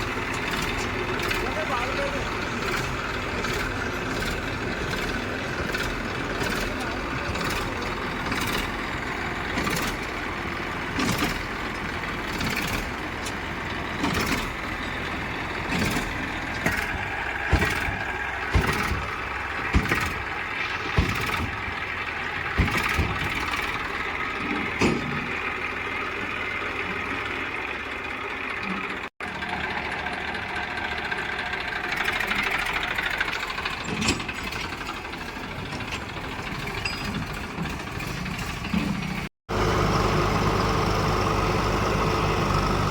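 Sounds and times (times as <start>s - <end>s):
diesel engine running: 0.0s - 42.9s
sharp knocks and clanks: 10.9s - 25.5s.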